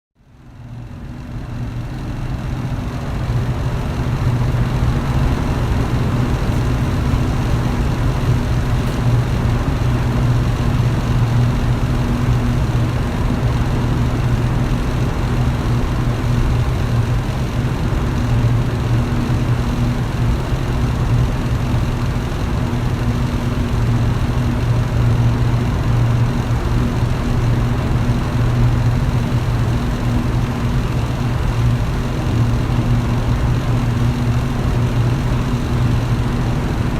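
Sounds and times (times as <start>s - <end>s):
electric fan running: 0.2s - 36.9s.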